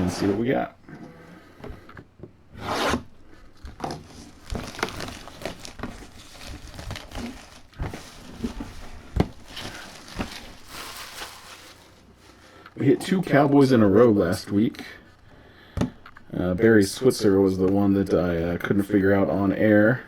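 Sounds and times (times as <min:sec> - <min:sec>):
packaging tearing and rustling: 0:02.9 - 0:12.1.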